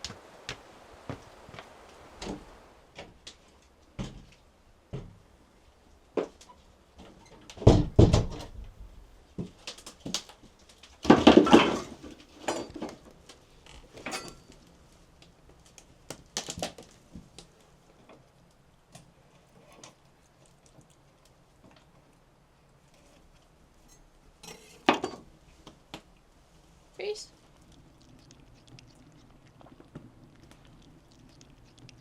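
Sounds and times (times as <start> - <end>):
objects knocking and clattering: 11.0 - 13.0.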